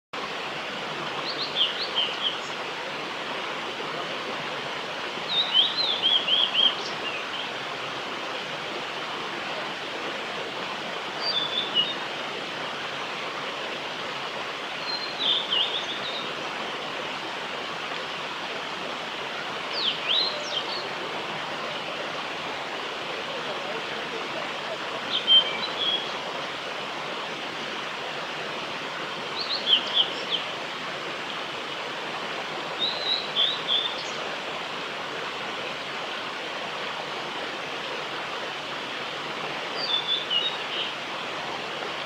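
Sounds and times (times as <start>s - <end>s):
bird singing whistled notes: 1.2s - 2.5s, 5.3s - 7.4s, 11.2s - 12.0s, 14.8s - 16.3s, 19.7s - 20.9s, 25.1s - 26.1s, 29.4s - 30.4s, 32.8s - 34.2s, 39.8s - 40.9s.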